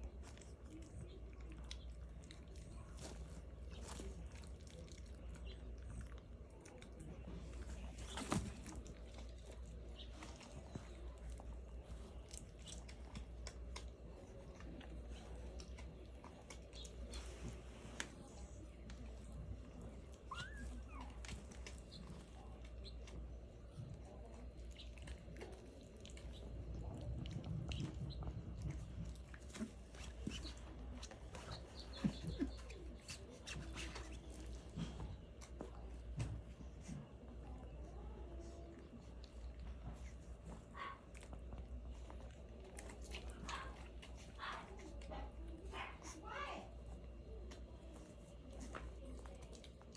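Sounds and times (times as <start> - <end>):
puppies chewing and smacking: 0.0 - 49.9
soft rustling: 7.0 - 38.2
puppies squeaking and whimpering: 20.1 - 23.0.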